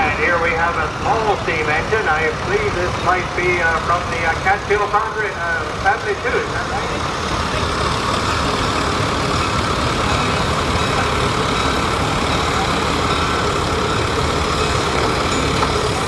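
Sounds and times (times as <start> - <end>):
antique machinery engine rumble: 0.0 - 16.0.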